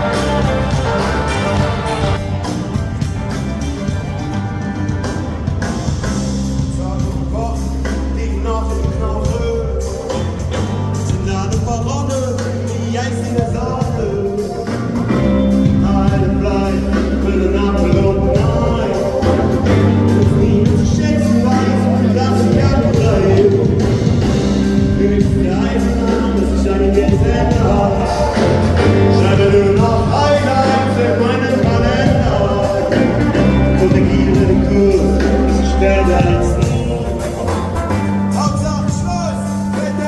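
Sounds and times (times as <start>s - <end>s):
rock band playing live: 0.0s - 40.0s
person singing: 6.5s - 40.0s.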